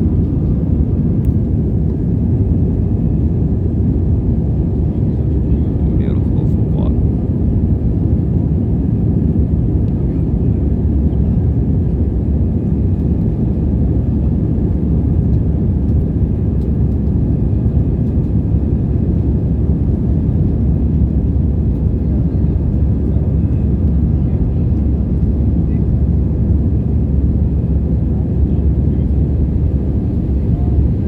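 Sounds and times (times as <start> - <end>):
airplane cabin rumble: 0.0 - 31.0.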